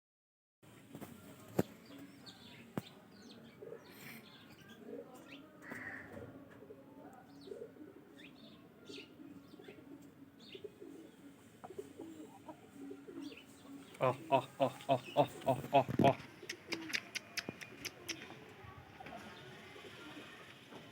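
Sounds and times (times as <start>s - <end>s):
birds cooing: 3.4s - 18.4s
birds chirping: 7.3s - 20.3s.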